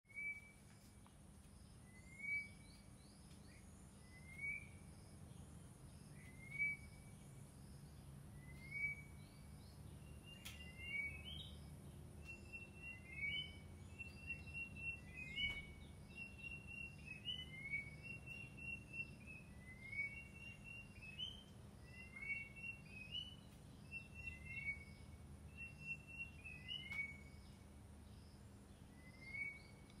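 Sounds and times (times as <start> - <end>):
bird rising whistle: 2.0 - 2.6, 4.1 - 4.8, 6.2 - 7.0, 8.4 - 9.2, 10.3 - 11.5, 12.3 - 25.0, 25.6 - 27.3, 29.0 - 29.7.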